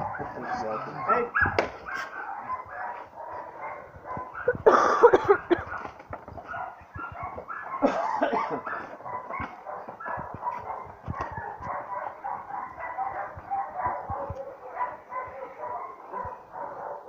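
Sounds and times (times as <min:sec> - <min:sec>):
dog yelping: 0:00.0 - 0:17.0
light thumps and knocks: 0:01.4 - 0:01.9, 0:04.2 - 0:06.5
dog whining and yipping: 0:04.1 - 0:07.9.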